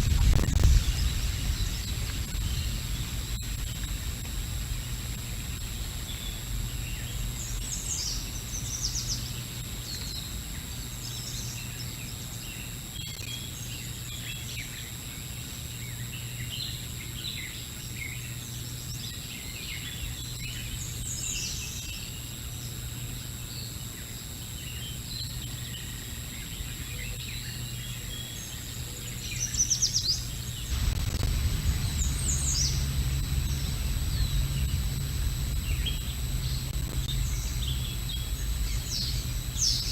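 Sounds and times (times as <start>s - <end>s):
low rumbling noise: 0.0s - 9.8s, 30.4s - 39.9s
steady low microphone hum: 0.0s - 39.9s
wild birds chirping and trilling: 0.1s - 39.9s.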